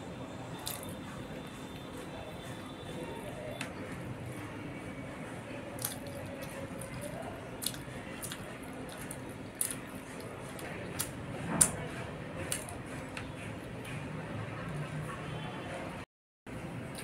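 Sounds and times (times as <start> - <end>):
person chewing food: 0.6 - 4.2, 5.6 - 15.2.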